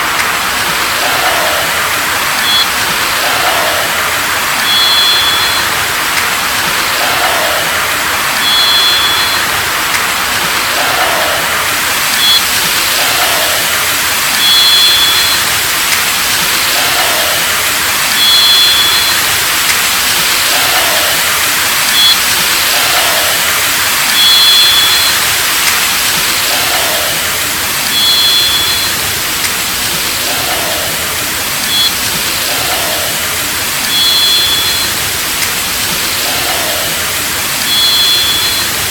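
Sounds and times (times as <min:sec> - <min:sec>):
steady loud hiss: 0:00.0 - 0:38.9
short high two-note whistle: 0:02.4 - 0:02.8, 0:04.6 - 0:05.8, 0:08.4 - 0:09.6, 0:12.1 - 0:12.5, 0:14.4 - 0:15.6, 0:18.1 - 0:19.4, 0:24.1 - 0:25.3, 0:27.9 - 0:29.0, 0:31.6 - 0:32.0, 0:33.9 - 0:35.0, 0:37.6 - 0:38.9.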